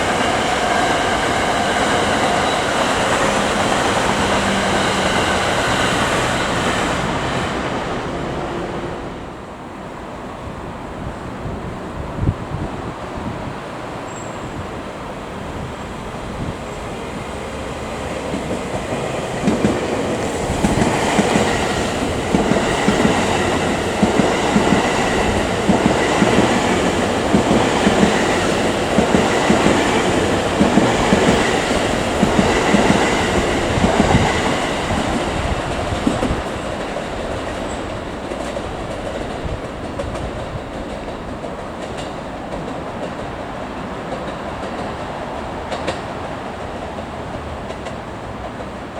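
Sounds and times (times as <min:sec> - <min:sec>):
train wheels clicking over rail joints: 0:00.0 - 0:08.0, 0:15.8 - 0:48.9
electric train passing: 0:00.0 - 0:48.9.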